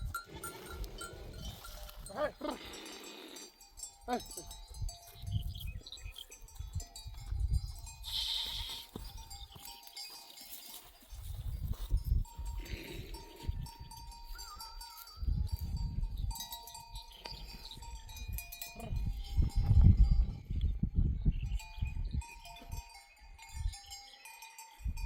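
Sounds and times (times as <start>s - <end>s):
livestock bells ringing: 0.0s - 20.6s, 21.4s - 25.0s.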